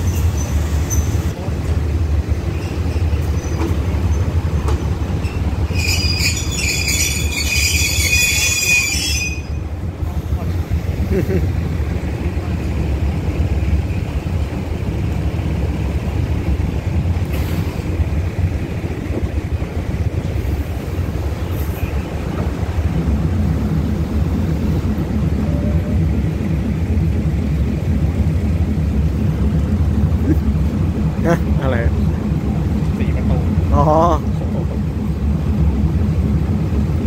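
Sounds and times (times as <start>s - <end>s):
train wheels rumbling on rails: 0.0s - 37.0s
low rhythmic pulsing: 8.0s - 37.0s.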